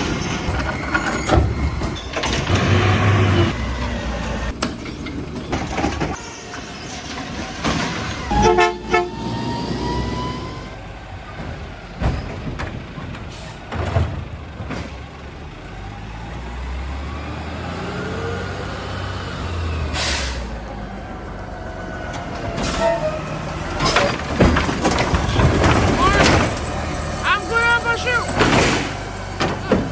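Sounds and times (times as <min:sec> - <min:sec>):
garbage truck engine revving: 0:00.0 - 0:29.9
air brakes hissing: 0:08.0 - 0:10.8, 0:19.9 - 0:20.6, 0:22.6 - 0:24.0.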